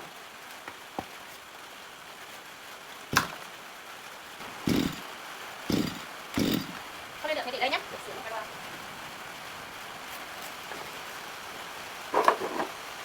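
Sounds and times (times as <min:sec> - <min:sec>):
heavy thump: 0:03.2 - 0:03.4
sharp knock: 0:03.2 - 0:03.4, 0:04.7 - 0:05.0, 0:05.7 - 0:06.8.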